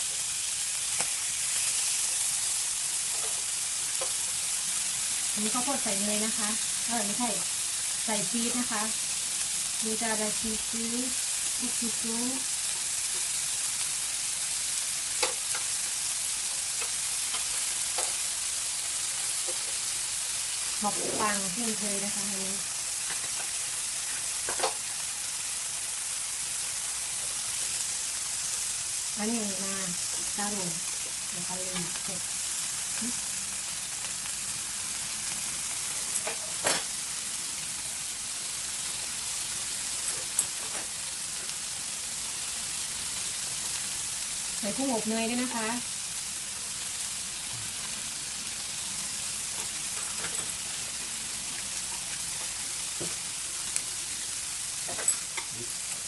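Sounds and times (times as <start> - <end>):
food sizzling: 0.0 - 56.0.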